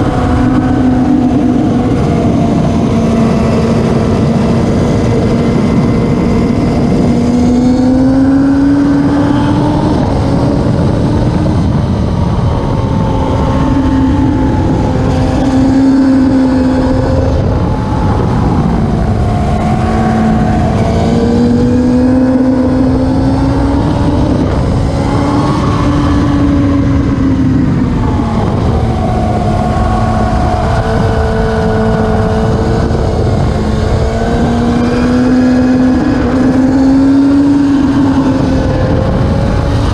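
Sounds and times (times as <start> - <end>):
motorcycle engine at high revs: 0.0 - 39.9
steady rushing noise: 0.0 - 39.9.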